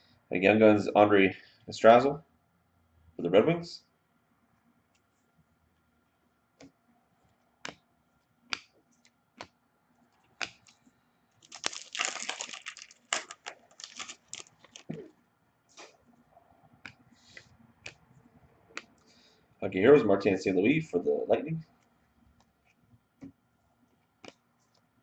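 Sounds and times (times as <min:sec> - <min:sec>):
cards clicking and tapping: 0:06.6 - 0:06.8, 0:07.6 - 0:09.6, 0:10.2 - 0:10.8, 0:24.2 - 0:24.8
foil wrapper tearing and crinkling: 0:11.4 - 0:15.0.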